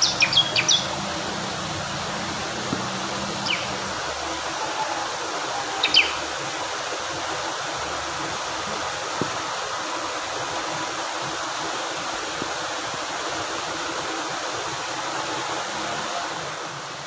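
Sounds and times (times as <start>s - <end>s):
bird chirps: 0.0s - 1.0s, 3.3s - 3.9s, 5.8s - 6.2s
fast-flowing stream water: 0.0s - 17.0s.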